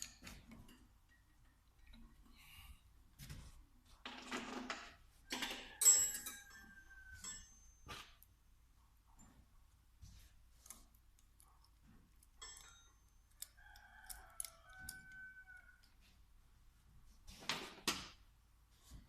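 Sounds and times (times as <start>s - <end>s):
clicks handling small parts: 10.6s - 15.2s.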